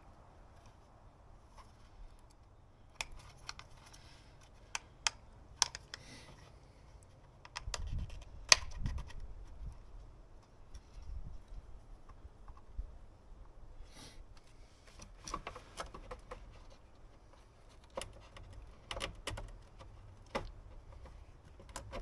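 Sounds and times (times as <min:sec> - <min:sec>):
oil filter parts clicking: 0:02.2 - 0:06.4.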